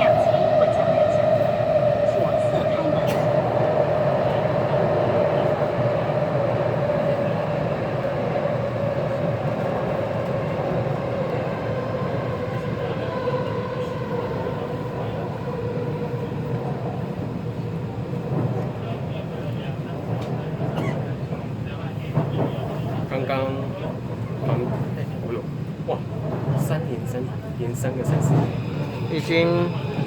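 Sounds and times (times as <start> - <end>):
train rumble: 0.0 - 30.0.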